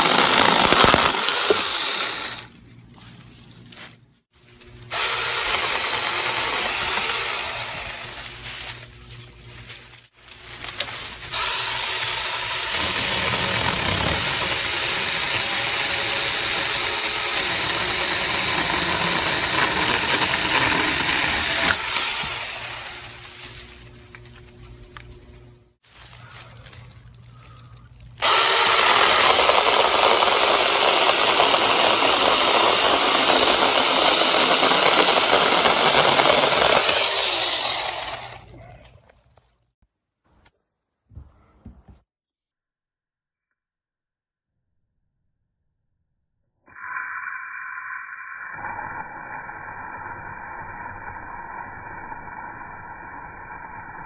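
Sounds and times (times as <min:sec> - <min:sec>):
battery chainsaw running: 0:00.0 - 0:02.5, 0:04.7 - 0:09.6, 0:10.3 - 0:24.9, 0:28.2 - 0:38.5.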